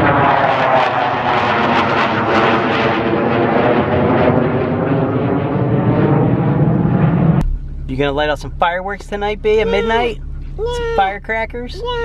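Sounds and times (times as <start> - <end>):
military jet taking off: 0.0 - 7.4.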